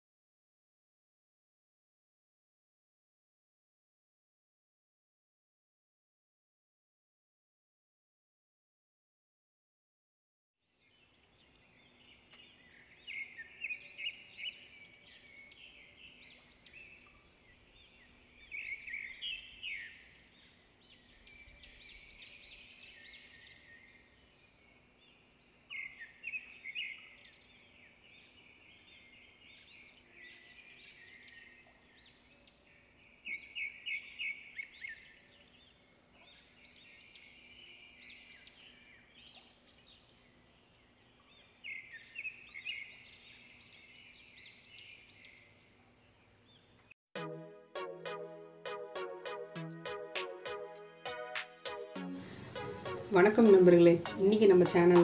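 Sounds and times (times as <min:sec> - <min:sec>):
birds chirping and trilling: 0:10.7 - 0:46.9, 0:52.2 - 0:55.0.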